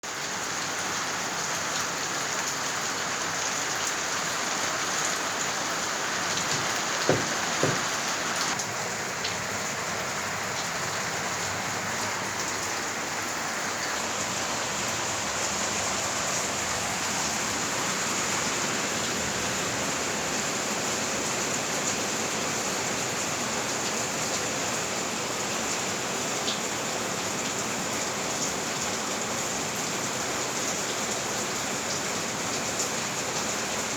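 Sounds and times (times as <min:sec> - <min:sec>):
rain pattering on surfaces: 0:00.0 - 0:33.9
short loud knocks: 0:06.5 - 0:08.0.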